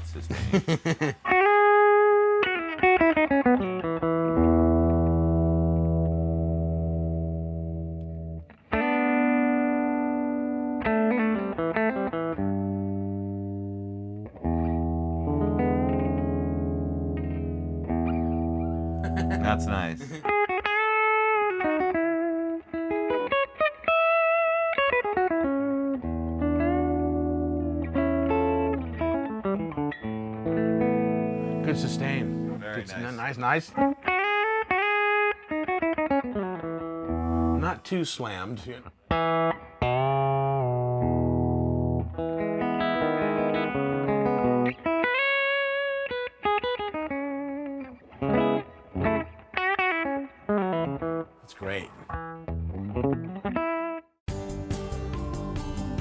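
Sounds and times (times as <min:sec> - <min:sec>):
electric guitar: 0:01.0 - 0:37.6, 0:38.9 - 0:51.4, 0:52.0 - 0:56.0
electric guitar slow notes: 0:03.4 - 0:23.4.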